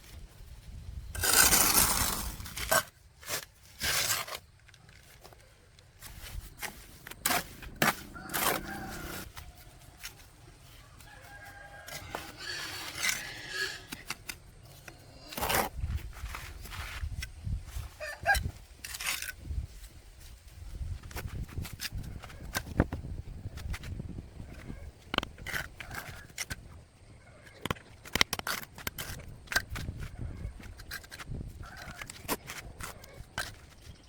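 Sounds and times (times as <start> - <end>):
loud scraping: 1.2 - 2.9
rooster crowing: 8.1 - 9.6, 11.0 - 12.6.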